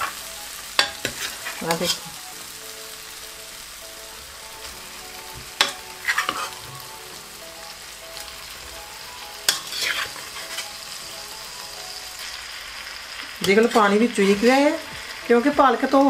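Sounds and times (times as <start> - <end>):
vegetables sizzling in a pan: 0.0 - 16.0
utensil scraping a pan: 0.8 - 2.2, 5.5 - 6.8, 9.5 - 11.3, 13.4 - 15.1.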